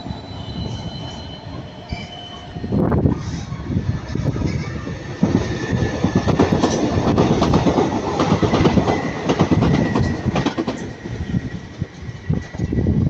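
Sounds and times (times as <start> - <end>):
high-pitched wheel squeal: 0.0 - 4.8
train wheels clacking: 4.1 - 12.8.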